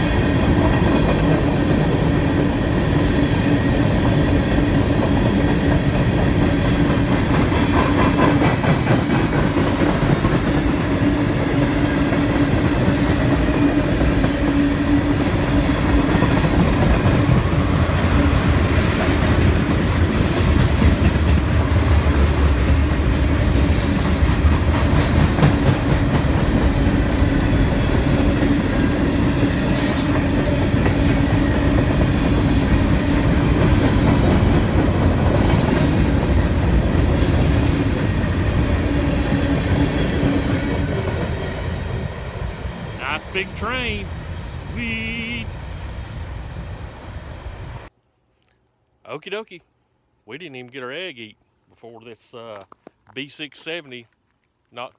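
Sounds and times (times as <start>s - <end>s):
train wheels rumbling on rail: 0.0s - 47.9s
wheels clicking over rail joints: 15.2s - 41.4s.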